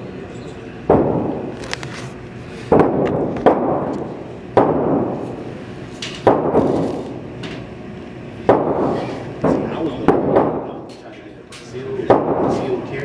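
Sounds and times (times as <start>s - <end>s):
gunshots ringing out: 6.2s - 6.8s, 8.5s - 10.7s, 12.0s - 12.6s.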